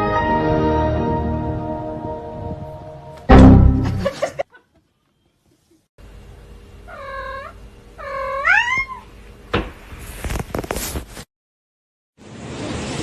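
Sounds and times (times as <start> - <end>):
cat meowing: 6.9 - 9.1
thump: 9.5 - 9.8.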